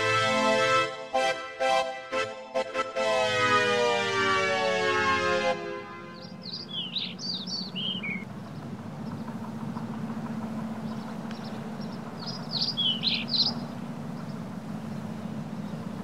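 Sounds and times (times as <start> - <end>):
steady low hum: 5.5 - 16.0
songbird chirping: 5.8 - 16.0.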